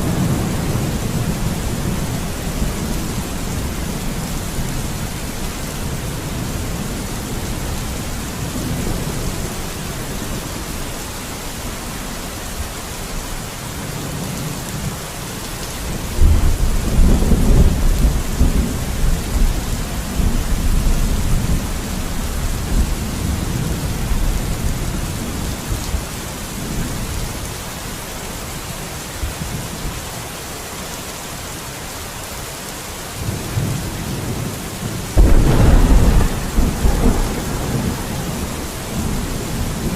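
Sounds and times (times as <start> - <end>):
rolling thunder: 0.0 - 10.4, 15.9 - 25.9, 35.1 - 39.9
steady rain: 0.0 - 39.9.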